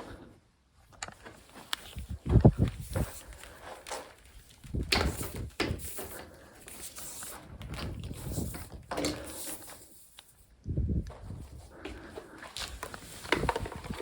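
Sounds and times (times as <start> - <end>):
objects knocking and clunking: 3.9 - 6.5, 7.6 - 9.9, 11.9 - 14.0.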